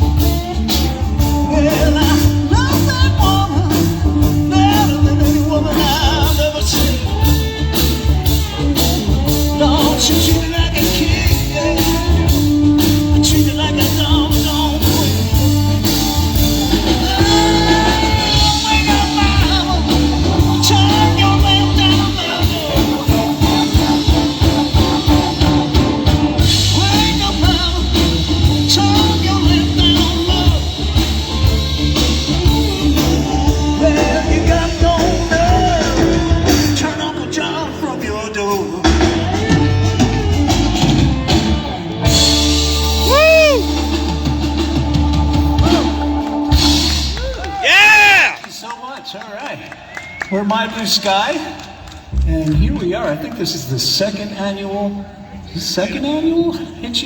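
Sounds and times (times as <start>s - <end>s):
person singing: 0.0s - 46.9s
rock and roll band playing: 0.0s - 48.6s.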